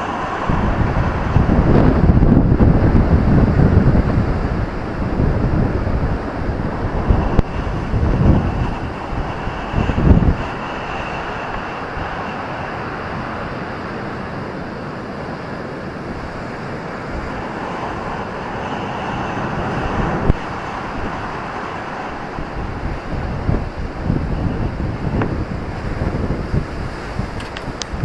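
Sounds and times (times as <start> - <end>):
ocean waves breaking: 0.0 - 28.0
wind buffeting the microphone: 0.0 - 28.0.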